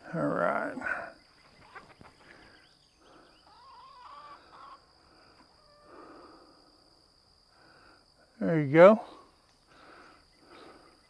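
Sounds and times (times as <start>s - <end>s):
chickens clucking and warbling: 0.0s - 7.8s.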